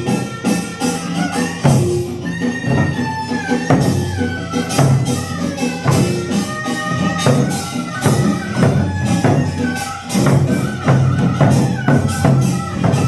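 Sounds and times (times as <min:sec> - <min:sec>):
percussion strokes in steady beat: 0:00.0 - 0:13.0.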